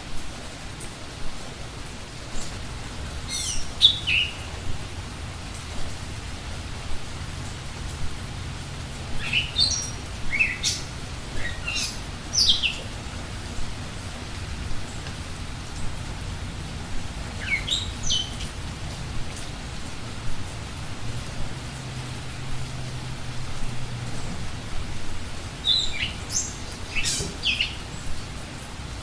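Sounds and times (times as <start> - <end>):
steady background hiss: 0.0 - 29.0
songbird chirping: 2.4 - 5.8, 9.1 - 13.1, 17.2 - 18.6, 21.7 - 28.2.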